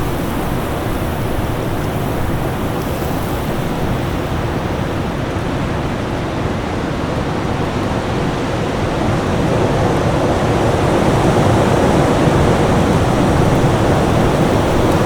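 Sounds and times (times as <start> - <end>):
storm wind rushing: 0.0 - 5.1.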